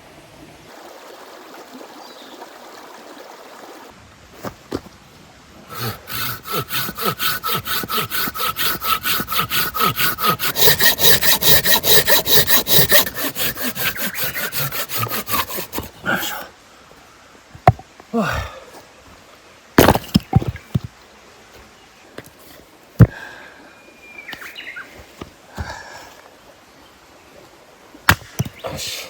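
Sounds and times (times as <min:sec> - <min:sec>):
hand saw cutting wood: 0:05.7 - 0:16.4, 0:19.8 - 0:20.2.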